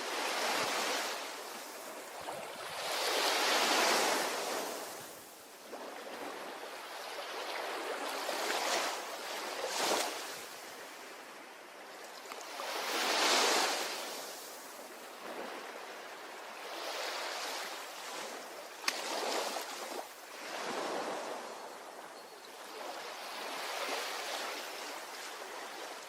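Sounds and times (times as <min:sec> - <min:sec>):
ocean waves breaking: 0:16.6 - 0:21.5.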